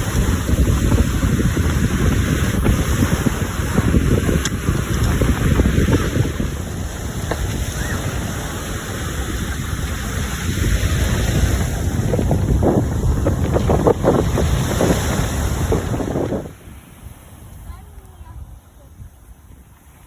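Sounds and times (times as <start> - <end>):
sea waves breaking: 0.0 - 20.0
wind buffeting microphone: 0.0 - 20.0.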